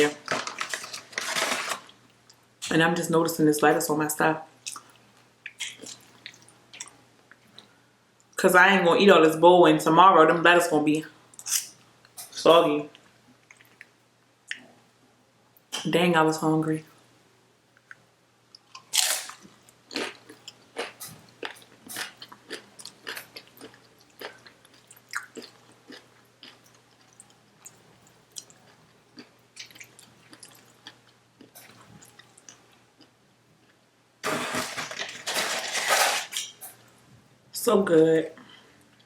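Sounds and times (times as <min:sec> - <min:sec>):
chewing with mouth smacks: 0:04.6 - 0:07.7, 0:17.8 - 0:33.8
food crunching: 0:17.8 - 0:36.5.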